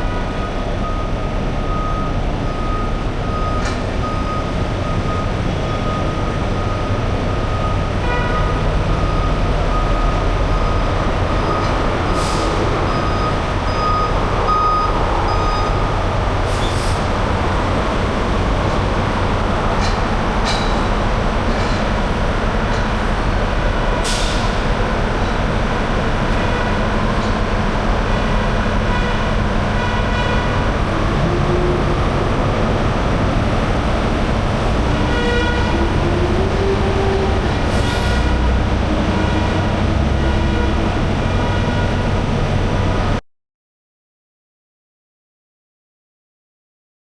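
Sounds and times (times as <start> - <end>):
diesel engine running: 0.0 - 43.2
backup alarm beeping: 0.8 - 21.0
sharp clanks: 19.8 - 22.1.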